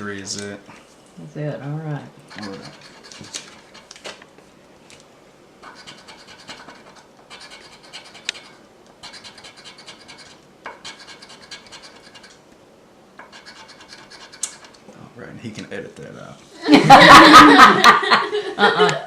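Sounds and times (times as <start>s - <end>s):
scratching lottery ticket: 2.3s - 4.0s, 5.6s - 12.4s, 13.2s - 14.8s.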